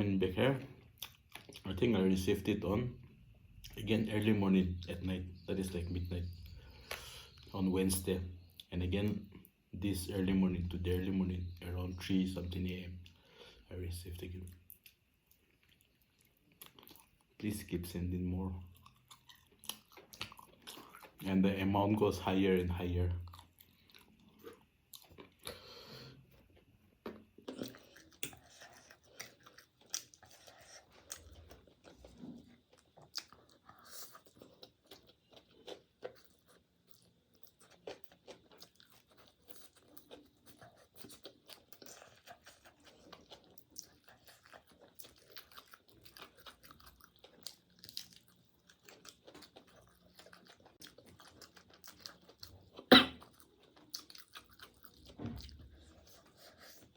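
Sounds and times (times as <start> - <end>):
person chewing food: 0.7 - 1.7, 6.4 - 7.5, 14.5 - 17.4, 18.6 - 21.4, 23.2 - 56.9.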